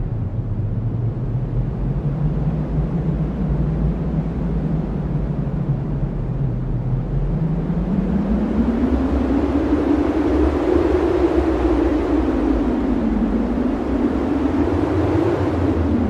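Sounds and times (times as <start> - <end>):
wind blowing with deep rumble: 0.0 - 16.0.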